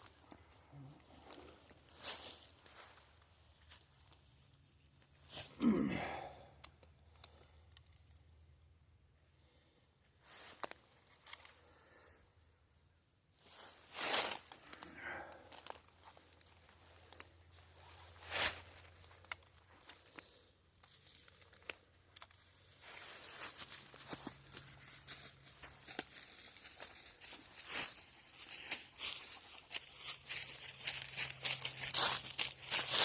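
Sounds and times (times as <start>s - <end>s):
rustling and crinkling: 0.0s - 5.6s, 13.4s - 33.0s.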